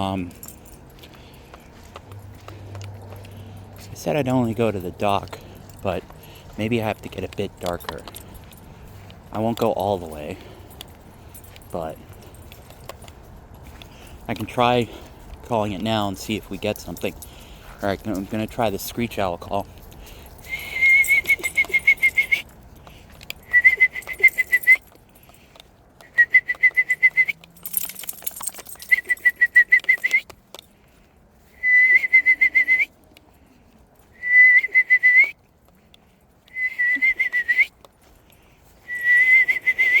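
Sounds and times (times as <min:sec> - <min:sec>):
person whistling owl trills: 0:20.5 - 0:22.4, 0:23.4 - 0:24.8, 0:31.6 - 0:32.9, 0:34.2 - 0:35.3, 0:36.5 - 0:37.7, 0:38.8 - 0:40.0.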